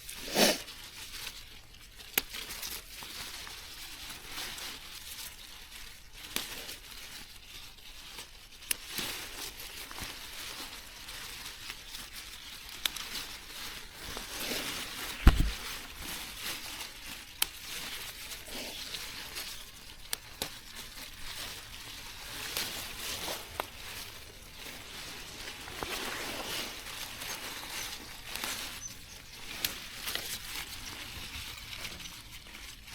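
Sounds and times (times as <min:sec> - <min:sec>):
plant material rustling and tearing: 0:00.1 - 0:32.9
loud low thump: 0:15.2 - 0:15.6.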